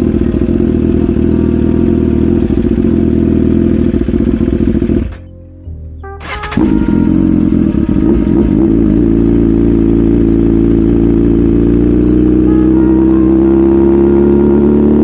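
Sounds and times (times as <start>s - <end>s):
motorcycle engine accelerating: 0.0s - 5.3s, 6.2s - 15.0s.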